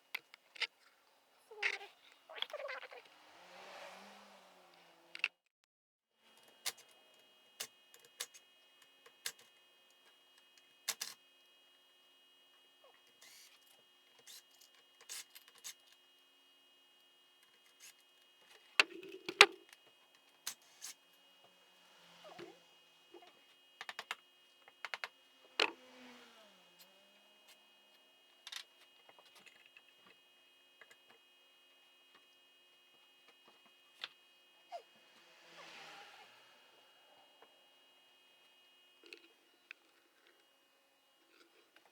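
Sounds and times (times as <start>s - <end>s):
faint steady hum: 6.2s - 41.9s
tools and small parts clinking: 13.2s - 16.0s.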